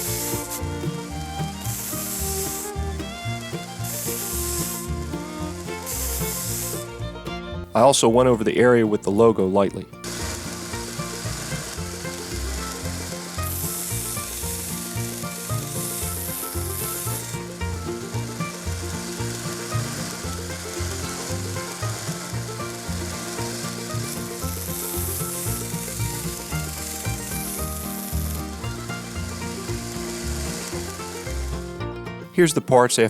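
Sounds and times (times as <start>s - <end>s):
belt grinder grinding steel: 0.0s - 7.0s
background music: 0.0s - 33.0s.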